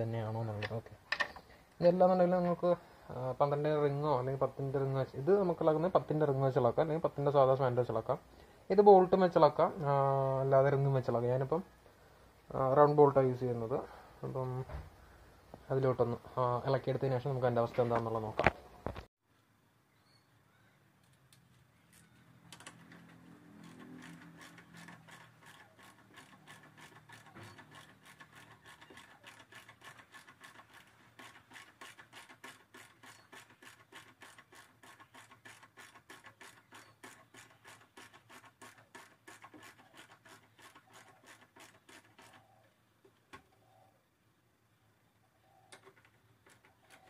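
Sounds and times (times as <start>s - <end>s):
ratchet wrench clicking: 23.6s - 42.3s.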